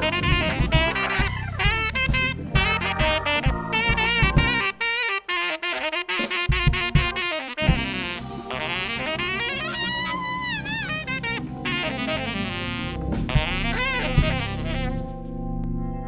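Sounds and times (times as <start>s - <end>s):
drum hits: 0.0s - 4.8s, 6.2s - 8.7s, 13.1s - 14.8s
tenor saxophone lead: 0.0s - 15.5s
jazz-soul band playing: 0.0s - 15.6s.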